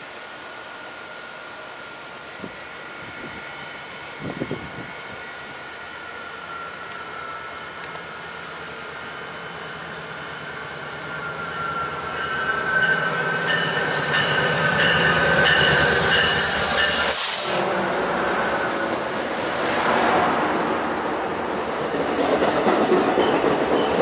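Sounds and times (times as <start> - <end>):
train cars rumbling by: 0.3 - 24.0
train wheels and brakes squealing: 2.2 - 19.5, 22.0 - 24.0
locomotive rushing past: 6.2 - 24.0.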